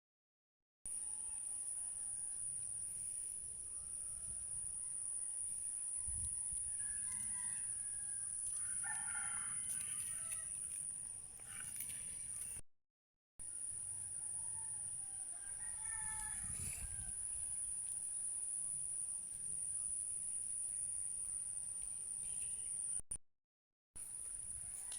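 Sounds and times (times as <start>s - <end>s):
rooster crowing: 6.0s - 10.7s, 13.9s - 17.4s, 24.6s - 24.9s.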